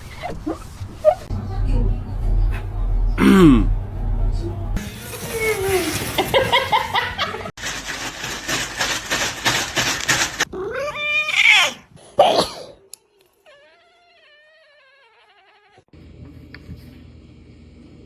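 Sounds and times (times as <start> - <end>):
cat yowling: 10.6 - 11.8, 13.4 - 15.9.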